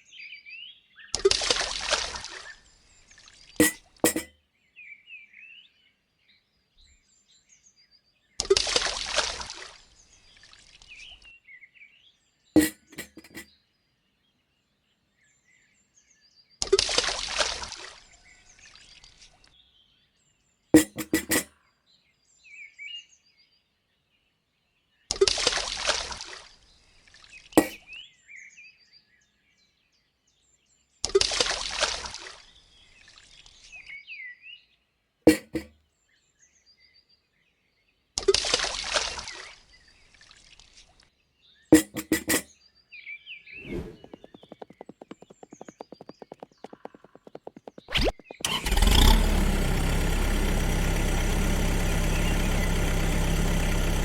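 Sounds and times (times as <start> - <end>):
water splashing in bursts: 1.3 - 2.4, 8.5 - 9.8
faint bird chirps: 43.6 - 48.5
sharp clicks: 44.0 - 49.9.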